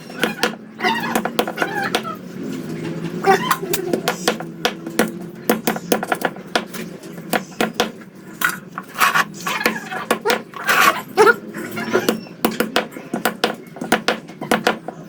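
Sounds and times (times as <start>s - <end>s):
metal utensils and dishes clinking: 8.3s - 12.0s.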